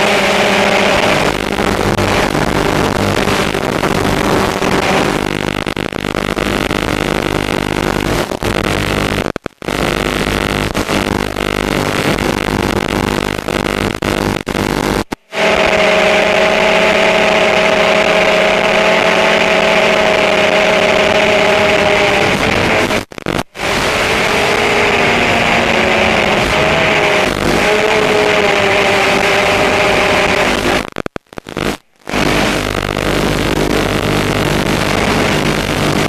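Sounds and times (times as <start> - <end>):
drone motors whining: 15.3 - 30.8.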